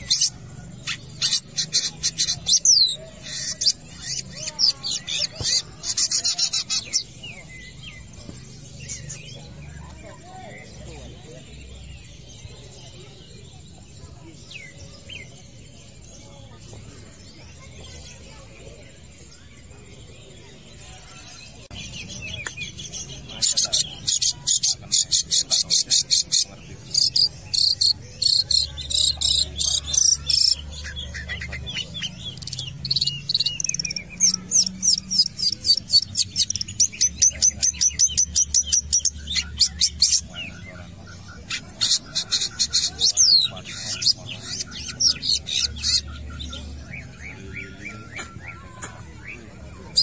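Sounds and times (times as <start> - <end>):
bird singing high squeaky chirps: 0.0 - 10.8, 21.5 - 50.0.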